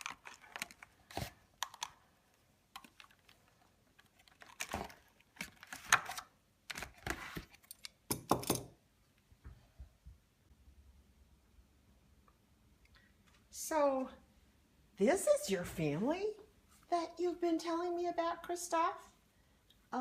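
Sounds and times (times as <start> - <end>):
plastic packaging clicks and rustles: 0.0 - 8.0.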